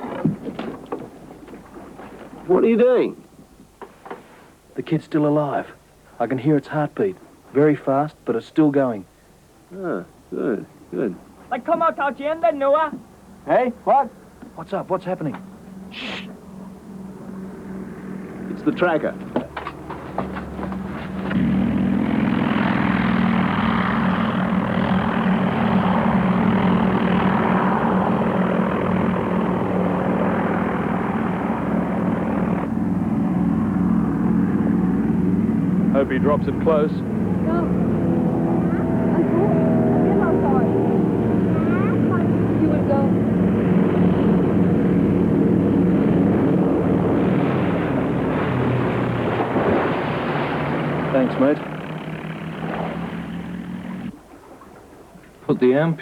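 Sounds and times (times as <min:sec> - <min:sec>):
propeller plane engine drone: 0:00.0 - 0:56.0
rushing propeller noise: 0:13.5 - 0:54.2.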